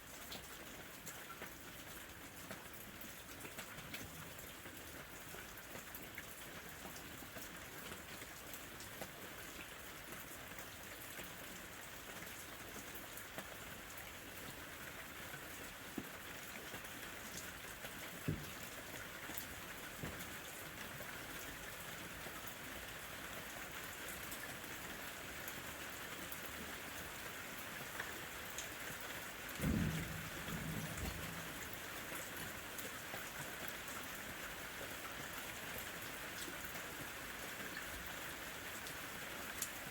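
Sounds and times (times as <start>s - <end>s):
rain falling: 0.0s - 39.9s
short low rumble: 29.6s - 31.8s.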